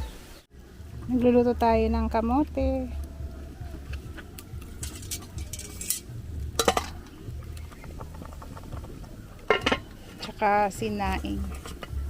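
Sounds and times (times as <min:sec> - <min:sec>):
pots and utensils clinking: 0:04.6 - 0:10.7.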